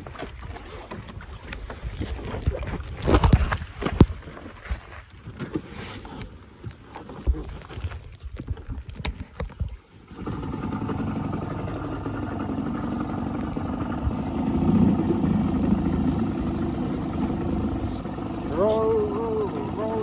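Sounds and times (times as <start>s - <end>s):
outboard motor running: 0.0s - 20.0s
gear knocking and clattering: 7.5s - 20.0s.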